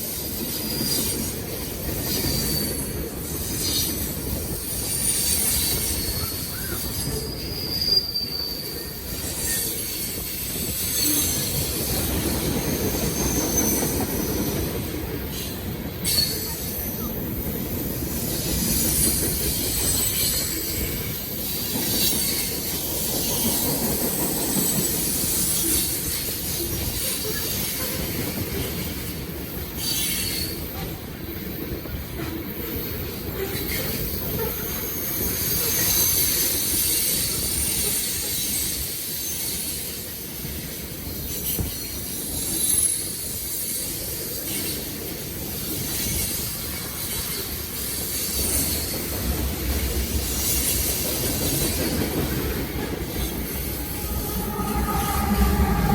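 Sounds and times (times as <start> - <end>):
train wheels rumbling on rail: 0.0 - 55.9
high-pitched wheel squeals: 5.0 - 11.6, 52.4 - 55.9.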